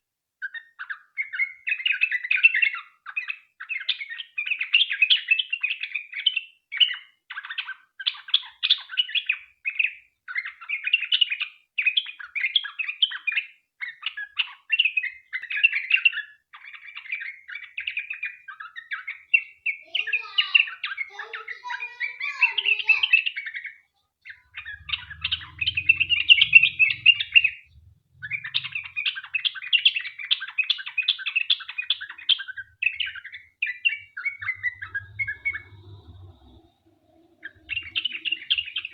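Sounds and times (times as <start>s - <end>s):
bulbul chattering song: 24.2s - 38.9s.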